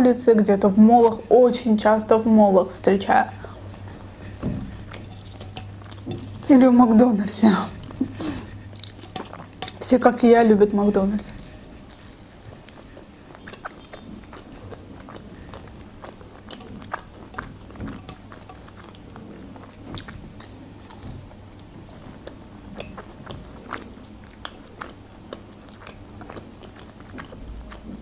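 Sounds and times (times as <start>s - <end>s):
person biting and chewing: 7.8s - 9.7s, 11.4s - 27.9s.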